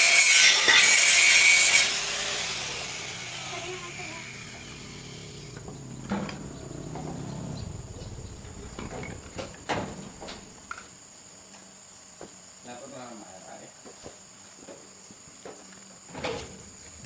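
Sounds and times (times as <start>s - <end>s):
high-pitched whine: 1.4s - 10.8s.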